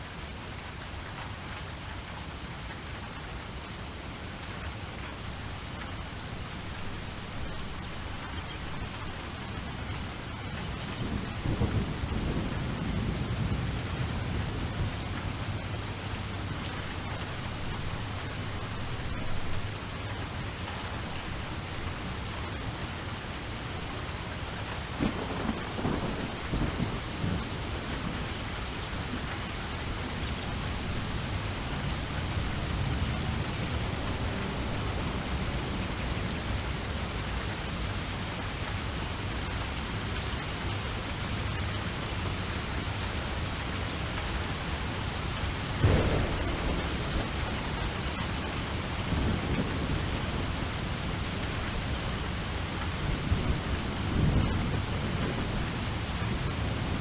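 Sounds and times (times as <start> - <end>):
steady rain falling: 0.0 - 57.0
thunder rumbling: 6.3 - 19.9, 23.7 - 37.1, 45.6 - 57.0
sharp thunderclap: 10.8 - 13.8, 25.0 - 29.2, 45.8 - 57.0.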